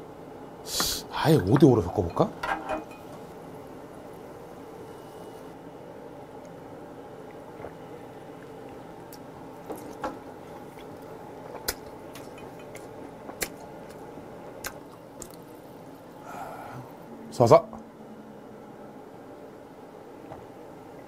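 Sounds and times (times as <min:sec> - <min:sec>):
steady low hum: 0:00.0 - 0:21.0
person chewing: 0:07.3 - 0:15.6.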